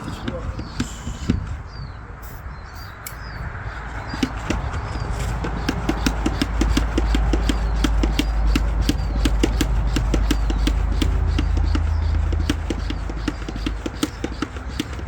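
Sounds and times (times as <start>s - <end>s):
small motor humming: 0.0s - 15.0s
regular sharp clicking: 2.8s - 3.4s, 4.1s - 15.0s.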